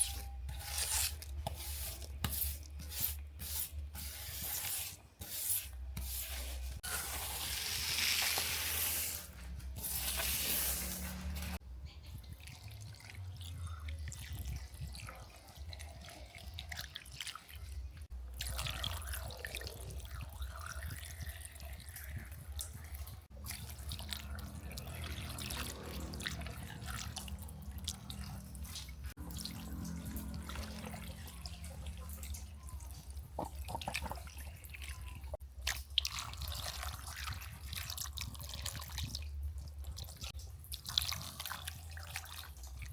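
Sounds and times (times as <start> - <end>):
water dripping and running: 12.0 - 42.9.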